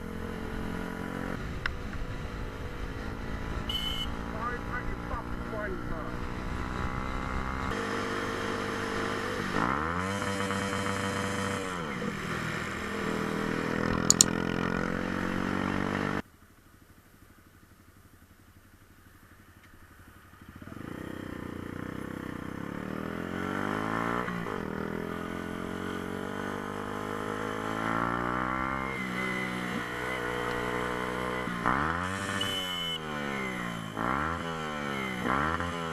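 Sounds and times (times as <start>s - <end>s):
motorcycle engine revving: 0.0s - 16.2s, 19.4s - 35.9s
sharp clicks: 13.9s - 14.4s.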